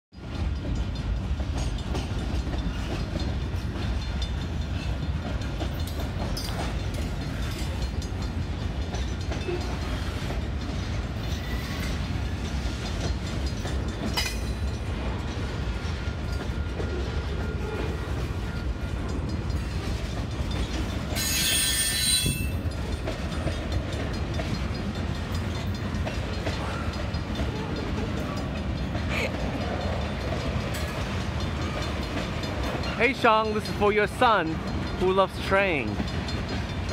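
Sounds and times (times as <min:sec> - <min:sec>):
train cars rumbling past: 0:00.2 - 0:36.9
high squeal: 0:21.2 - 0:22.6.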